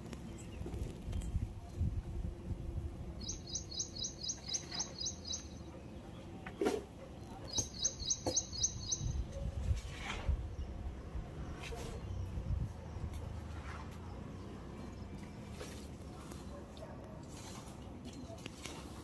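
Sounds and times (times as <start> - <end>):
small bird chirping: 3.2 - 6.2, 7.2 - 9.4.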